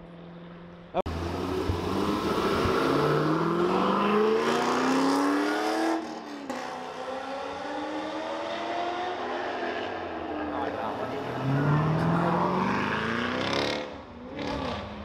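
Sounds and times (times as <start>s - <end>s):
car engine accelerating: 1.0s - 15.0s.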